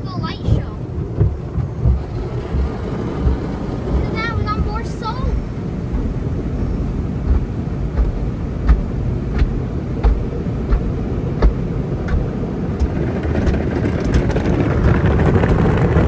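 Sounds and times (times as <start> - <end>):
car wash equipment rumbling: 0.0 - 16.0
water on car body: 0.0 - 16.0
sharp knock against car: 8.0 - 13.6.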